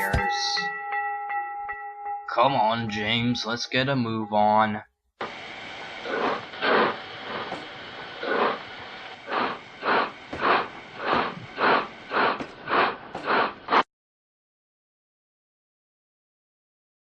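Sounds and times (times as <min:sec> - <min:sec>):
steady steam hiss: 0:05.2 - 0:13.8
steam locomotive chuffing: 0:05.2 - 0:13.8.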